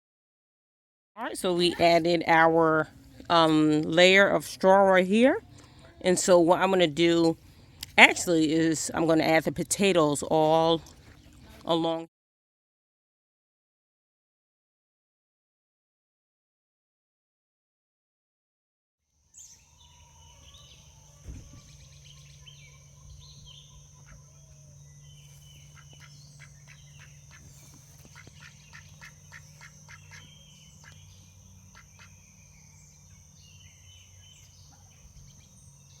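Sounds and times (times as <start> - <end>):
birds calling: 19.4 - 36.0
low hum: 19.4 - 36.0.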